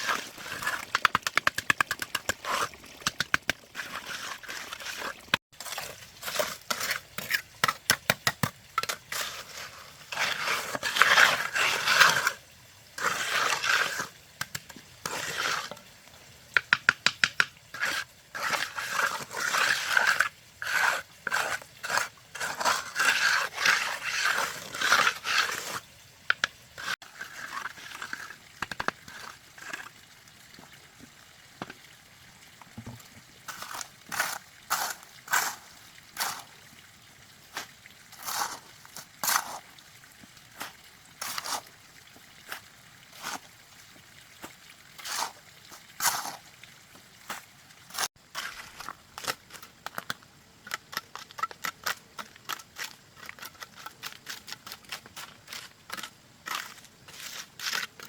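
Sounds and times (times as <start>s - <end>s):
scraping and crunching strokes: 0.0s - 7.8s, 8.8s - 12.4s, 13.0s - 15.9s, 17.7s - 29.9s, 33.5s - 36.6s, 37.5s - 39.8s, 44.4s - 46.5s, 47.2s - 58.0s.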